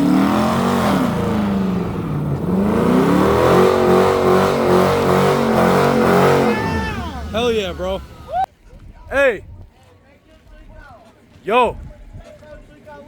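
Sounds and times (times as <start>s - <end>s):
car engine revving hard: 0.0s - 8.4s.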